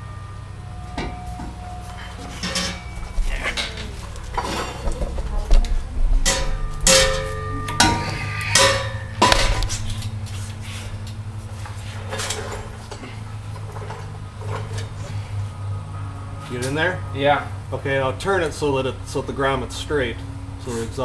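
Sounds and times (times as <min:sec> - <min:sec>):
metal pipe clanking and ringing: 0:00.0 - 0:10.2
steady low hum: 0:00.0 - 0:21.0
sharp metal knocks: 0:06.2 - 0:10.1.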